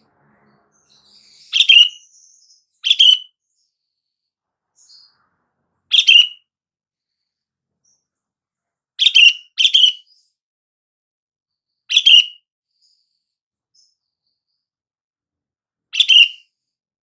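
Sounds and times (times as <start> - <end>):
bird calling: 0.0 - 2.1, 5.9 - 6.4, 16.0 - 16.4.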